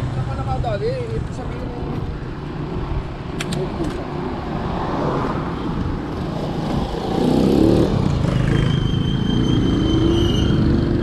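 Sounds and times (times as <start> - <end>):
wind rumble on microphone: 1.1 - 8.3.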